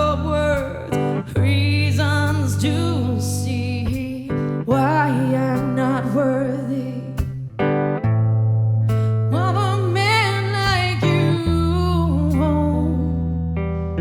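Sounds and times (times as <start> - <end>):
person singing: 0.0 - 7.2, 9.3 - 13.2
acoustic guitar: 0.0 - 14.0.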